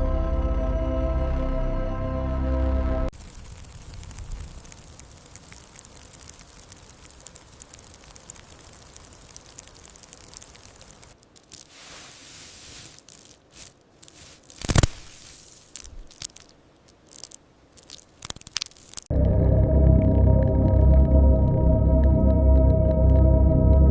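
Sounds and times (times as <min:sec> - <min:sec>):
music: 0:00.0 - 0:03.1, 0:19.1 - 0:23.9
soft crackling and crunching: 0:03.1 - 0:19.1
scattered rustles: 0:03.2 - 0:19.1.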